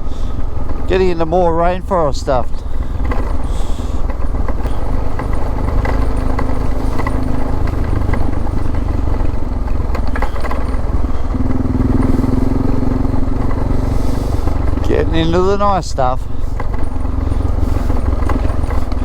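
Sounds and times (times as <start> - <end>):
motorcycle engine running: 0.0 - 19.0
clicks and rattles: 0.4 - 19.0.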